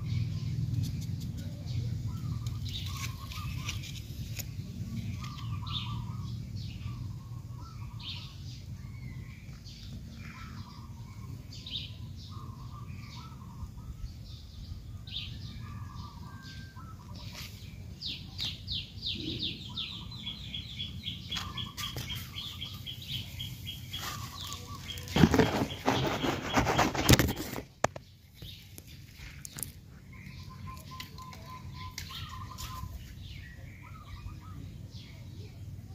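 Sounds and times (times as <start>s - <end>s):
low outdoor rumble: 0.0s - 35.9s
wild birds calling and chirping: 0.0s - 35.9s
loud rustle: 23.8s - 27.9s.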